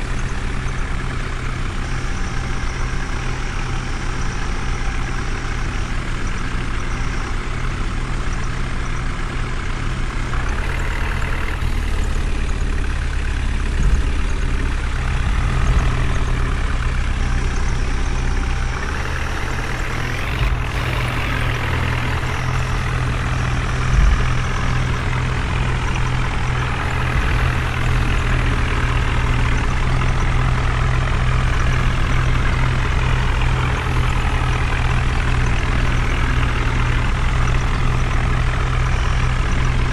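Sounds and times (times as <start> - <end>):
heavy diesel engine running: 0.0 - 39.9
heavy thumps: 13.0 - 17.5, 22.0 - 27.7.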